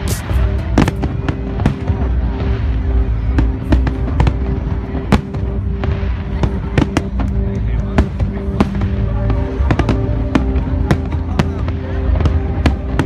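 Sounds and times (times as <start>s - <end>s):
fireworks shells bursting: 0.0s - 1.1s
deep rumble: 0.0s - 1.3s
music with long held notes: 0.0s - 13.0s.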